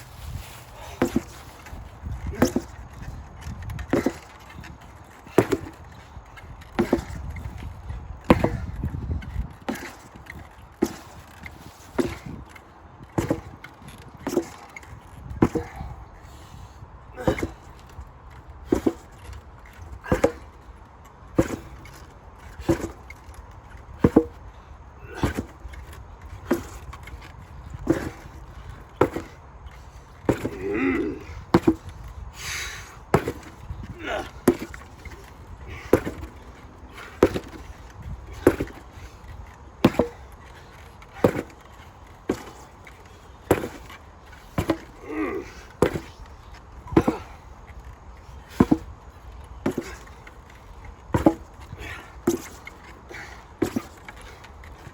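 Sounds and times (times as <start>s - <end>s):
sledgehammer striking: 33.1s - 37.7s, 38.3s - 38.8s, 39.8s - 40.3s, 41.1s - 41.7s, 43.5s - 43.9s, 51.1s - 51.5s.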